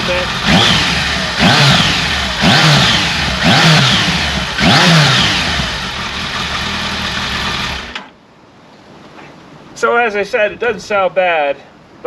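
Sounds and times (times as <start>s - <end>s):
motorcycle engine idling: 0.0s - 8.0s
motorcycle engine revving: 0.0s - 8.0s.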